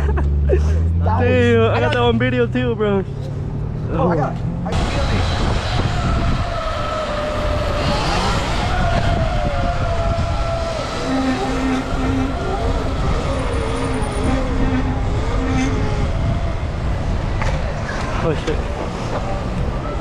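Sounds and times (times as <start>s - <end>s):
wind rumble on microphone: 4.4s - 20.0s
electric dirt bike motors whining: 4.8s - 20.0s.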